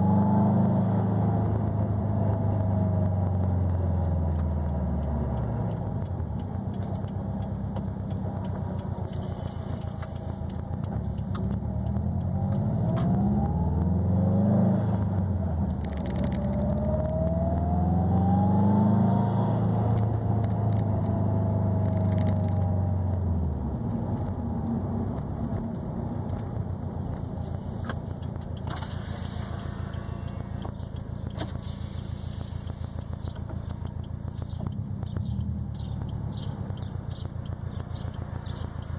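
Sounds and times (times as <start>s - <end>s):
car engine revving while driving: 0.0s - 38.9s.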